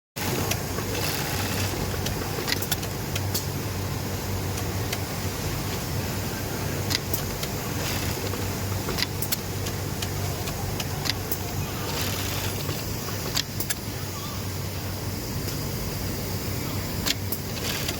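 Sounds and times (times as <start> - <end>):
sewing machine running: 0.2 - 2.0, 7.6 - 8.6, 11.8 - 12.8, 17.3 - 17.9.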